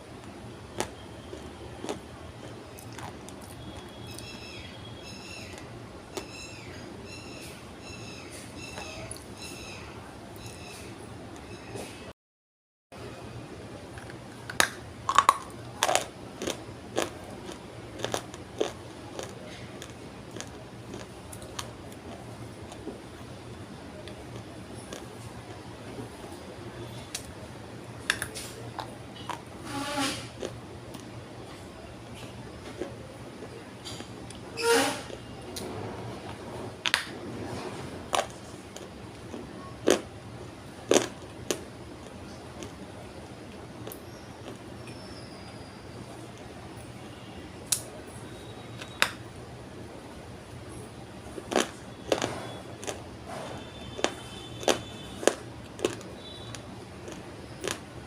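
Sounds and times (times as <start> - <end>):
clay being chewed with crunches: 0.2 - 4.3, 14.0 - 23.3, 38.1 - 40.1, 40.8 - 42.8, 43.5 - 45.1, 51.3 - 58.0.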